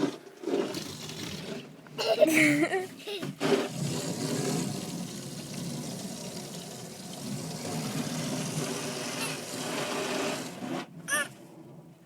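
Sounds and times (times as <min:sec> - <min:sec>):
water spraying on car: 0:03.4 - 0:10.9.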